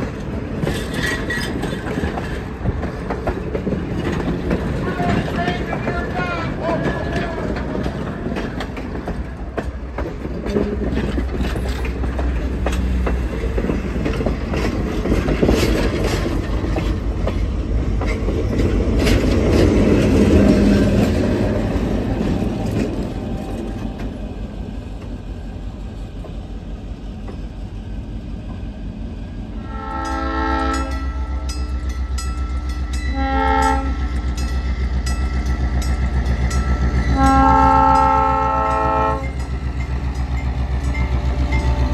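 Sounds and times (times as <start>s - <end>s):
train wheels clicking over rail joints: 0.0s - 28.8s, 29.4s - 41.9s
locomotive air horn blasts: 29.6s - 31.3s, 33.1s - 34.1s, 37.1s - 39.3s
crossing bell ringing: 29.6s - 41.9s.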